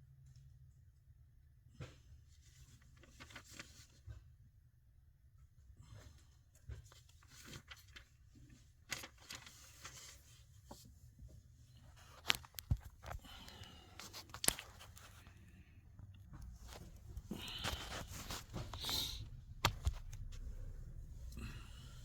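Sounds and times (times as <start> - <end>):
rustling and scraping: 6.0 - 21.4.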